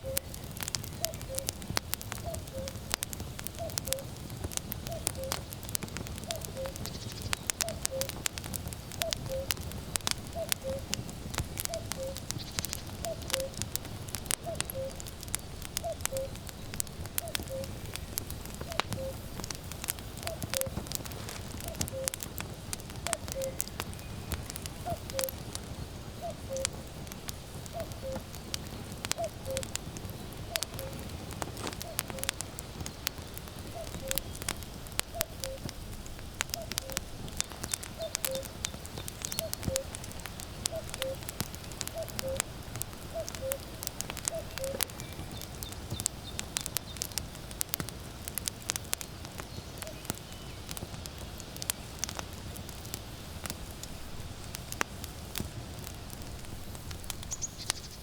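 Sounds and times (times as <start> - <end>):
cuckoo calling: 0.0 - 1.6, 2.2 - 2.9, 3.5 - 4.1, 4.8 - 5.5, 6.3 - 8.2, 9.0 - 9.6, 10.3 - 11.0, 11.6 - 13.7, 14.4 - 15.2, 15.8 - 16.4, 17.2 - 17.8, 18.6 - 19.4, 20.2 - 22.2, 23.0 - 25.4, 26.2 - 26.8, 27.7 - 28.5, 29.1 - 32.4, 33.7 - 34.4, 35.1 - 35.7, 36.5 - 40.0, 40.6 - 41.3, 41.9 - 46.4
firewood crackling and popping: 0.0 - 58.0.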